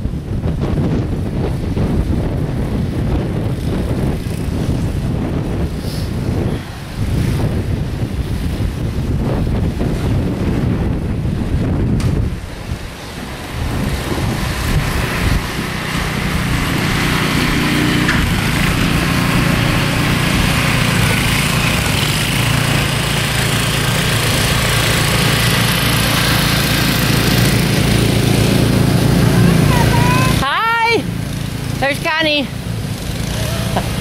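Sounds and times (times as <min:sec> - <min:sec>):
wind buffeting microphone: 0:00.0 - 0:34.0
small gasoline engine running: 0:13.2 - 0:34.0.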